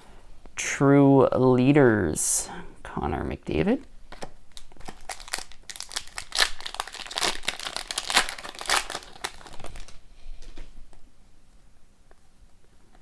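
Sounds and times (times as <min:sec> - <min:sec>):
plastic packaging crinkling: 0:04.0 - 0:10.8.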